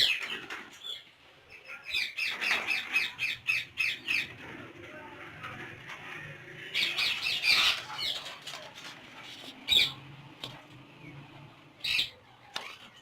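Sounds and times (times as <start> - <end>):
parakeets squawking: 1.9 - 4.4, 6.7 - 8.3, 9.7 - 10.0, 11.8 - 13.0.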